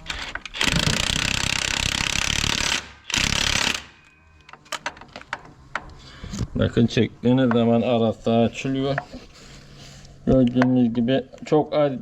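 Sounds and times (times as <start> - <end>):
air impact wrench hammering: 0.5 - 4.1.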